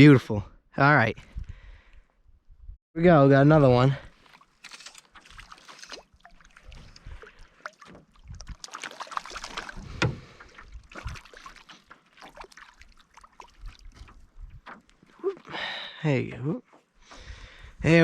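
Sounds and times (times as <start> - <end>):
water splashing and sloshing: 3.8 - 15.8.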